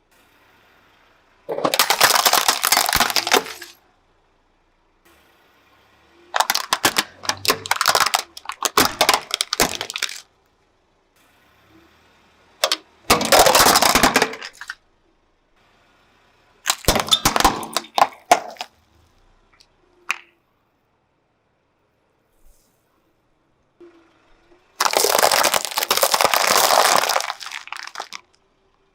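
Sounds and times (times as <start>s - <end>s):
tyre crushing objects: 1.5s - 3.8s, 6.4s - 10.2s, 12.6s - 14.8s, 16.7s - 18.7s, 24.8s - 28.2s.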